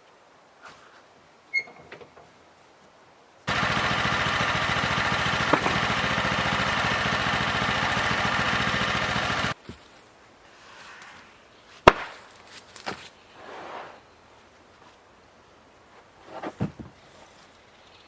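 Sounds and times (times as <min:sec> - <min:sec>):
small engine running: 0:03.5 - 0:09.6.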